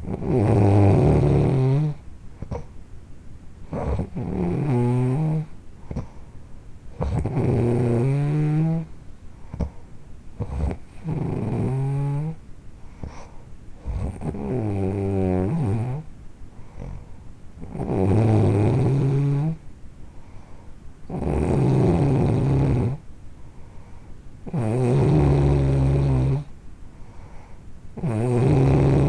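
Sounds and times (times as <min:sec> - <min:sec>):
loud snoring: 0:00.0 - 0:02.7, 0:03.7 - 0:06.1, 0:07.0 - 0:08.9, 0:10.4 - 0:12.4, 0:13.0 - 0:16.1, 0:16.8 - 0:19.6, 0:21.1 - 0:23.0, 0:24.4 - 0:26.5, 0:28.0 - 0:29.0
quiet breathing: 0:00.0 - 0:03.0, 0:03.6 - 0:14.7, 0:15.4 - 0:17.9, 0:18.7 - 0:29.0.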